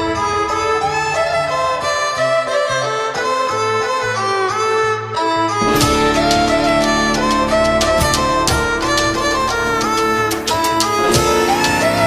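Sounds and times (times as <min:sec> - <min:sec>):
violin-like string melody: 0:00.0 - 0:12.0
electronic dance music: 0:05.6 - 0:12.0
steady percussion: 0:05.6 - 0:12.0.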